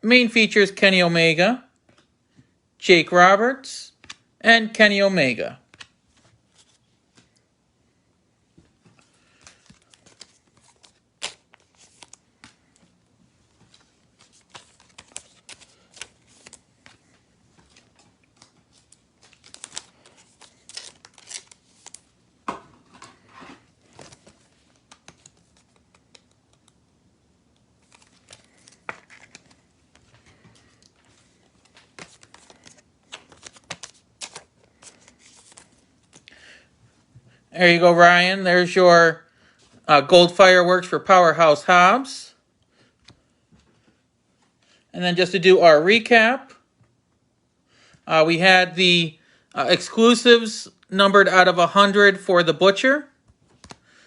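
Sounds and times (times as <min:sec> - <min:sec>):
cards and packaging handled: 0:05.6 - 0:07.5, 0:08.6 - 0:37.3, 0:53.3 - 0:54.0.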